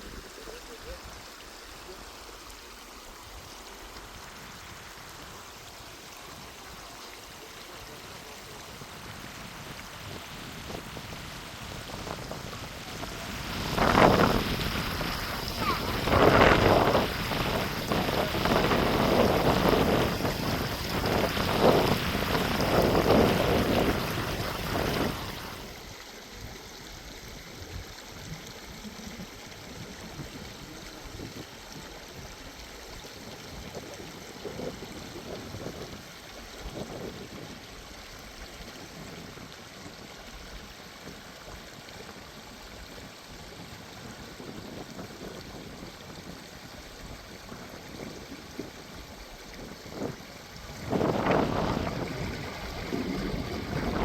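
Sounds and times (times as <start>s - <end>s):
running water hiss: 0.0s - 54.0s
wind gusts on microphone: 7.6s - 25.8s, 27.5s - 37.9s, 42.8s - 54.0s.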